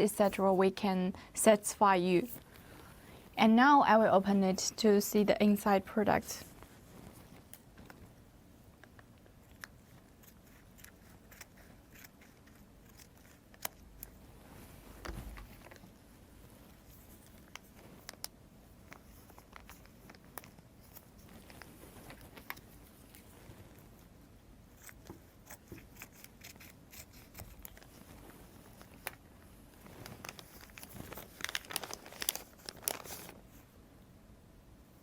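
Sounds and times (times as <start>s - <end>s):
plastic bag crinkling: 27.3s - 33.4s.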